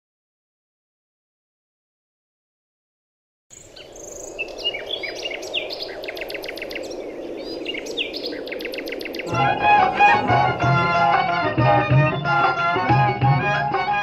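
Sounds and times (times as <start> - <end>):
background hiss: 3.5 - 11.2
birds chirping and trilling: 3.5 - 12.8
bowed string music: 9.3 - 14.0.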